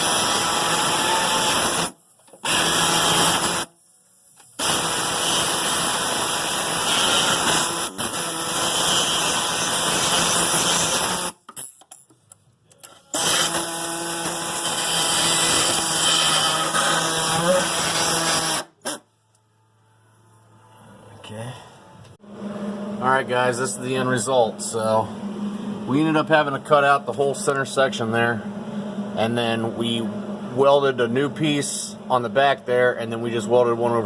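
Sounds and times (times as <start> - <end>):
power tool on sheet metal: 0.0 - 3.7, 4.6 - 11.4, 13.1 - 19.0.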